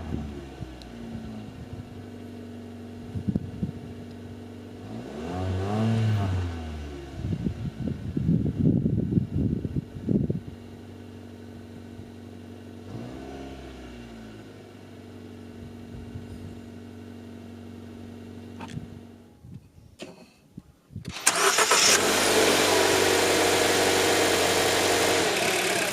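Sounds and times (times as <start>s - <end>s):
car engine idling: 0.0s - 4.8s, 14.0s - 19.4s, 21.2s - 25.9s.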